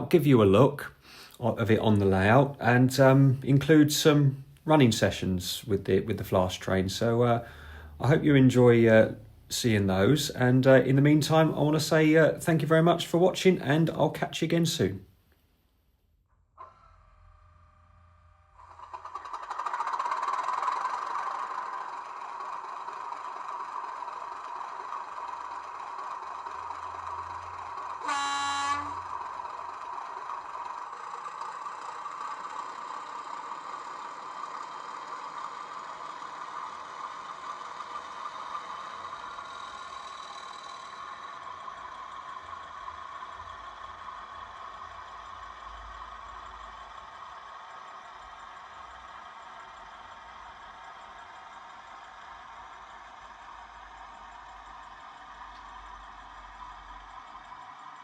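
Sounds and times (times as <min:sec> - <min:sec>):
diesel engine sound from small speaker: 0:00.0 - 0:15.2, 0:16.3 - 0:58.0
train horn blast: 0:28.0 - 0:29.2.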